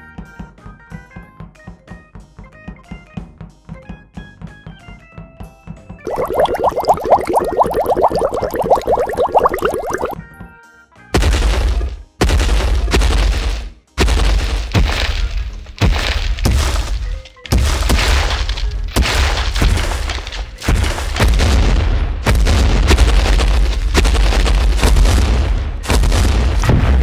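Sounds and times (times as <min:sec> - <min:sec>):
music: 0:00.0 - 0:06.0, 0:10.2 - 0:22.2
heavy booming cartoon footsteps: 0:11.2 - 0:27.0.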